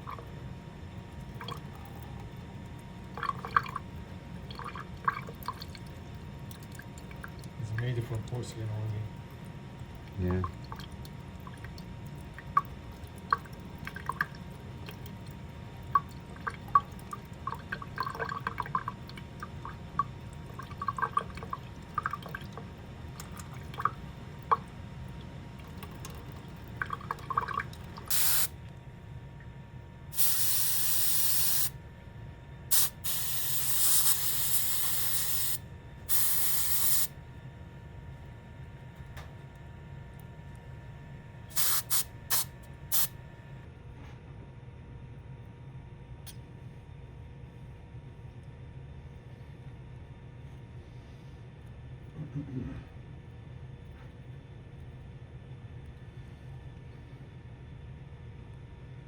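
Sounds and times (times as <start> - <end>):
air-water syringe spraying: 32.7 - 37.1, 41.5 - 43.1.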